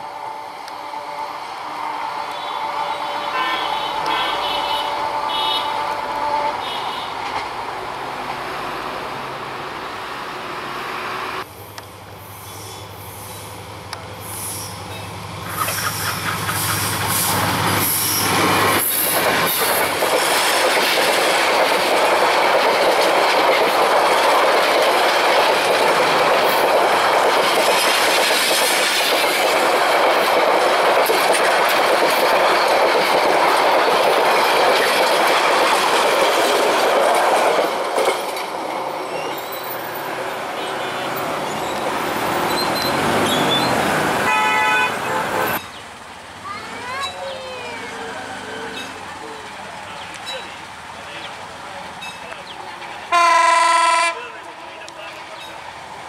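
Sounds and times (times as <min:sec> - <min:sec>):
diesel locomotive engine hum: 0:00.0 - 0:56.0
train rumbling: 0:00.0 - 0:56.0
wheels clacking over rail joints: 0:15.4 - 0:44.6, 0:48.7 - 0:53.2.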